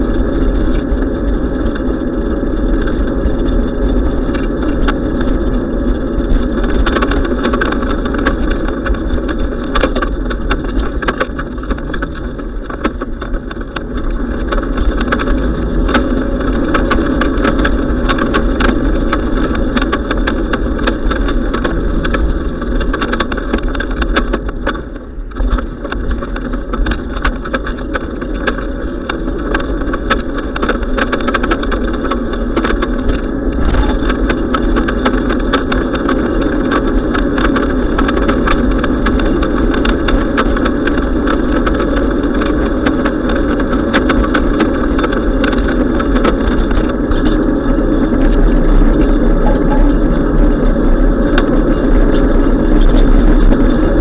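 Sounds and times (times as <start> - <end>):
bicycle clicks and rattles: 0.0 - 54.0
wind rumble on microphone: 0.0 - 54.0.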